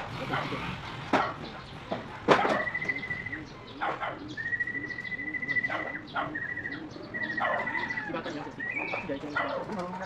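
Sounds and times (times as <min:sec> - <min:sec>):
pigeons cooing: 0:00.0 - 0:10.0
dog barking: 0:00.2 - 0:00.6, 0:02.3 - 0:02.8, 0:03.8 - 0:04.3, 0:05.7 - 0:06.4, 0:07.4 - 0:07.8, 0:09.3 - 0:09.8.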